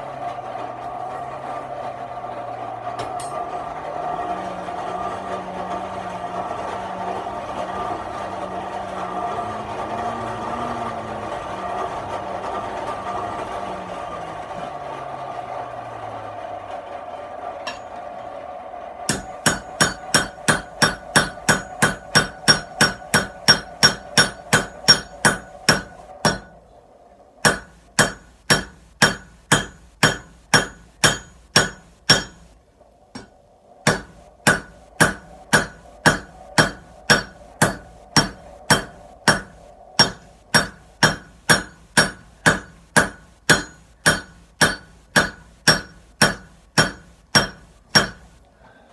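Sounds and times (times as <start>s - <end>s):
hammer striking steel on anvil: 3.0s - 3.6s, 17.6s - 18.0s, 19.1s - 26.6s, 27.4s - 32.5s, 33.2s - 48.4s.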